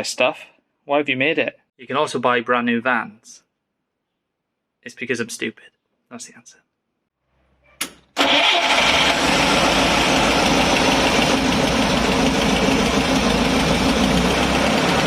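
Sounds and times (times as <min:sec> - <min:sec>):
engine running steadily: 0:08.2 - 0:15.0.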